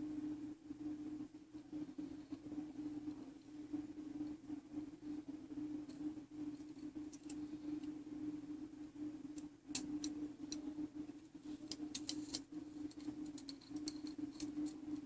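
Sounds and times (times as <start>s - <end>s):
steady low hum: 0.0s - 15.0s
small metal parts clicking: 11.7s - 14.8s.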